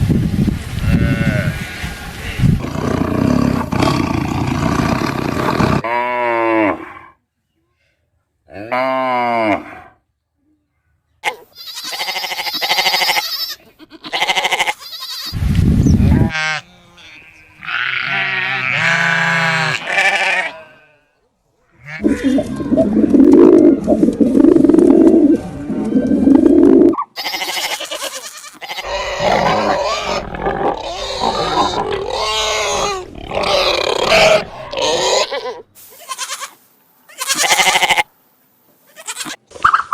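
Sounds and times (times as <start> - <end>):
animal grunting and roaring: 2.4 - 7.2, 21.9 - 27.0, 28.8 - 35.5
drawn-out pitched animal calls: 16.2 - 21.0, 21.7 - 35.7.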